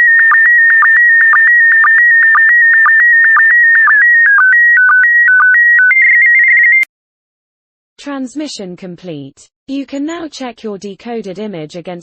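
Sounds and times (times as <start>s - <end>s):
short low sync beeps: 0.0s - 6.9s.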